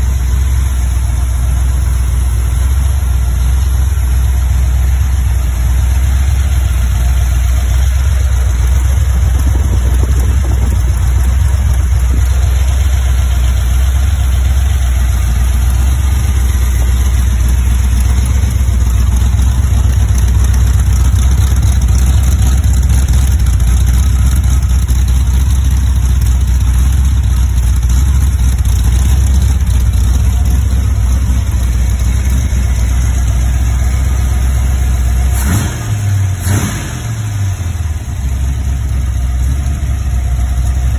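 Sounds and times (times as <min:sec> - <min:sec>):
car engine running steadily: 0:00.0 - 0:40.9.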